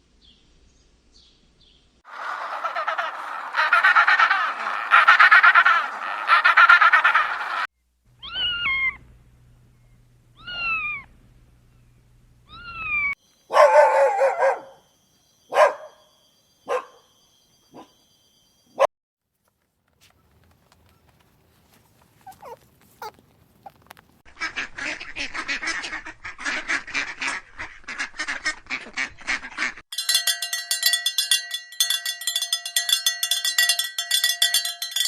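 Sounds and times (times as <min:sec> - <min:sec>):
fast chattering animal call: 0:02.1 - 0:07.7
cat meowing: 0:08.2 - 0:09.0, 0:10.4 - 0:11.1
dog yipping: 0:08.2 - 0:09.0, 0:10.4 - 0:11.1, 0:12.5 - 0:14.8, 0:15.5 - 0:16.0, 0:16.7 - 0:17.1, 0:17.7 - 0:17.9, 0:22.2 - 0:23.8.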